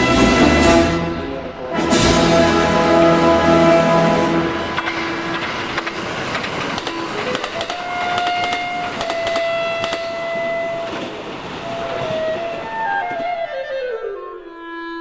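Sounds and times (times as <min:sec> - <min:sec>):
train clicking and rattling on rails: 0:00.0 - 0:14.0.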